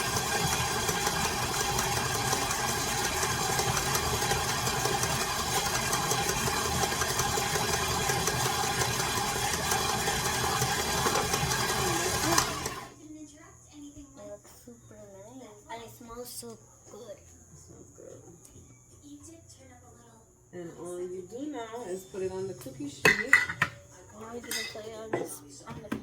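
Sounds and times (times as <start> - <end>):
electric mixer beating dough: 0.0 - 13.0.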